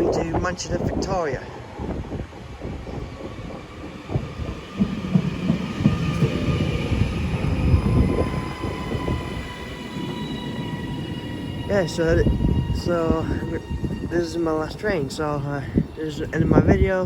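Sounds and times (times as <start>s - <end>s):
train wheels rumbling on rail: 0.0s - 17.0s
electric traction whine: 4.0s - 17.0s.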